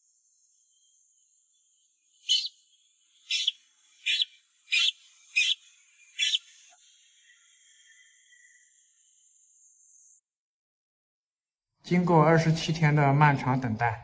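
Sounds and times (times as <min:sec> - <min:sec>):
young bird peeping: 0:02.2 - 0:08.6.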